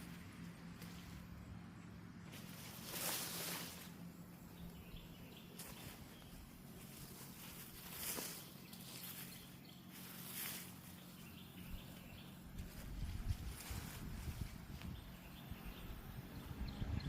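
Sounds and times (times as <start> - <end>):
faint low hum: 0.0 - 17.0
rustling scraping noises: 2.2 - 4.2, 5.5 - 15.3.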